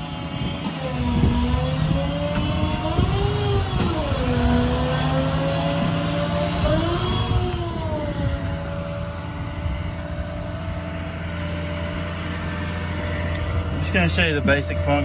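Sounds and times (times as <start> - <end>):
diesel truck engine running: 0.0 - 15.0
hydraulic system whining: 0.0 - 15.0.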